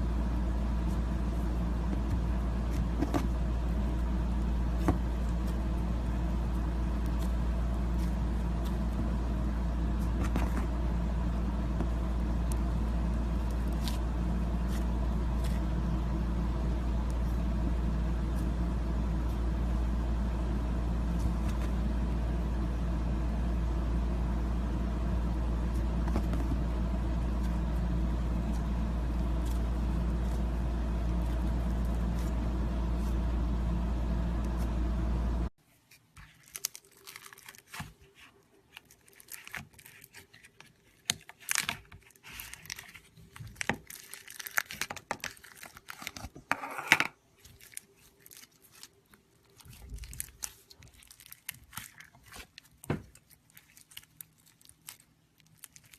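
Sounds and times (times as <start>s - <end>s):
droning low hum: 0.0s - 35.6s, 47.6s - 54.7s
crackles and crunches: 35.6s - 55.9s.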